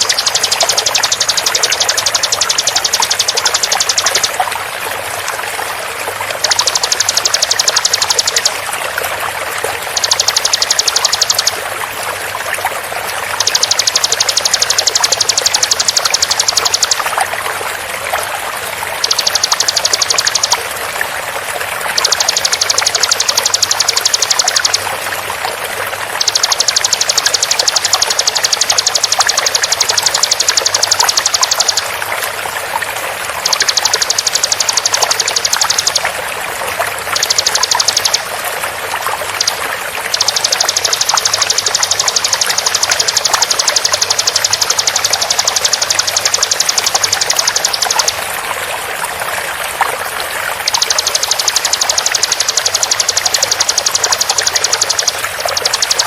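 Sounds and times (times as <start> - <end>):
bird calling in rapid high notes: 0.0 - 4.4, 6.4 - 8.7, 9.8 - 11.6, 13.2 - 17.2, 19.0 - 20.7, 21.9 - 25.2, 26.1 - 32.0, 33.4 - 36.1, 37.1 - 38.4, 39.2 - 48.3
flowing water: 0.0 - 56.0.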